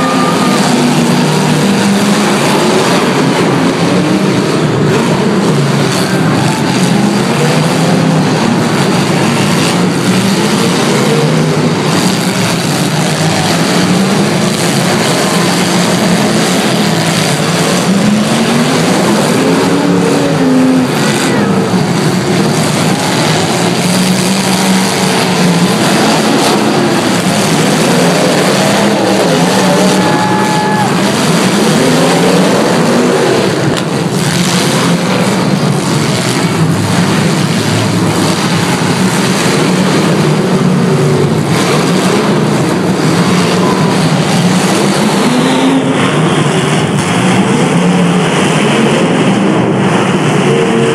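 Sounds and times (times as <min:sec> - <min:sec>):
car engines revving: 0:00.0 - 0:50.9.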